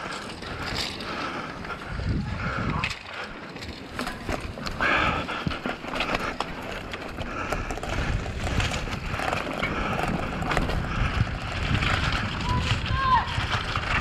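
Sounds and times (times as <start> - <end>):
mountain bike rattling over rocks: 0.0 - 14.0
wind rumble on microphone: 0.0 - 14.0.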